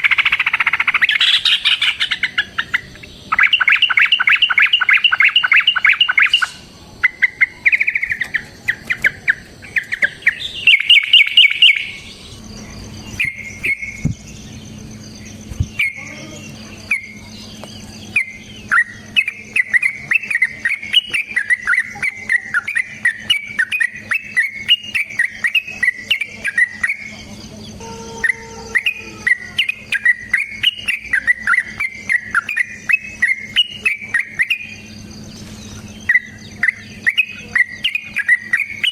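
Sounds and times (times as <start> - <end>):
low hum: 0.0 - 24.5
bird chirping in fast runs: 0.0 - 38.9
high-pitched insect-like ticking: 0.0 - 38.9.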